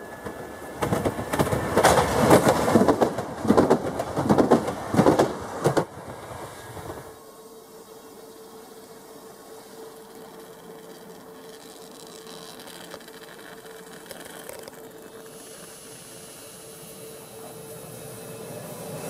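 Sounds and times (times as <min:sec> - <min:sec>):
approaching train hiss and tone: 0:05.2 - 0:14.1, 0:14.7 - 0:19.0.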